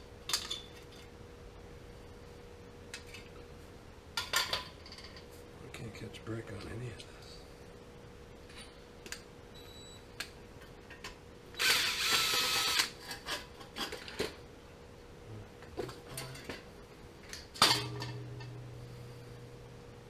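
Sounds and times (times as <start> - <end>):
power drill whining: 11.6 - 12.9.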